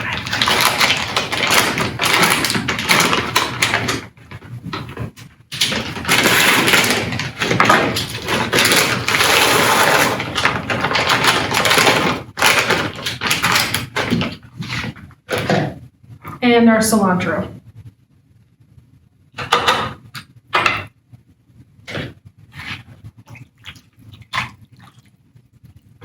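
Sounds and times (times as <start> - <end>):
spoon stirring and scraping: 0.0 - 16.4, 21.9 - 24.9.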